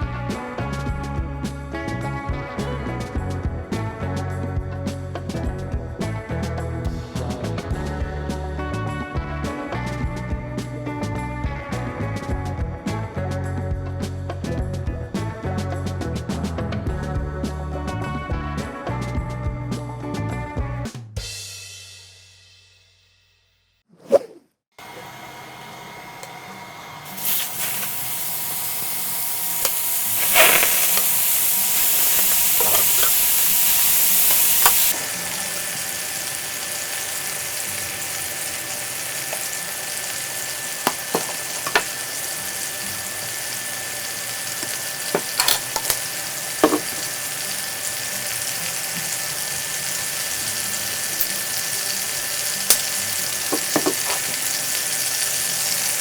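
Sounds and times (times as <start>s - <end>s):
food sizzling on a grill: 26.4s - 56.0s.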